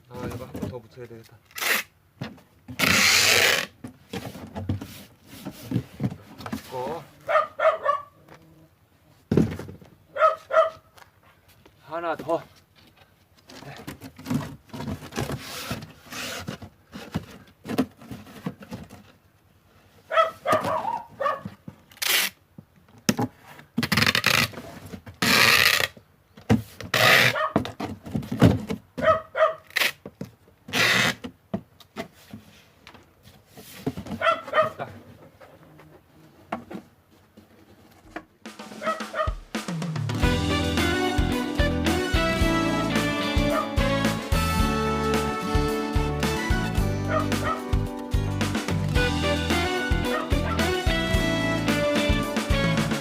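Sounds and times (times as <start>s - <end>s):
packing tape pulled off roll: 1.5s - 1.9s, 2.8s - 3.7s, 21.9s - 22.4s, 23.8s - 24.6s, 25.2s - 25.9s, 26.9s - 27.4s, 29.7s - 30.0s, 30.7s - 31.2s
cardboard box thuds and scrapes: 3.7s - 7.0s, 9.3s - 9.9s, 13.8s - 19.0s, 27.6s - 29.1s
dog barking: 7.2s - 8.2s, 10.1s - 10.9s, 20.1s - 21.5s, 27.3s - 27.6s, 29.0s - 29.7s, 34.2s - 34.8s, 38.8s - 39.4s, 47.1s - 47.6s.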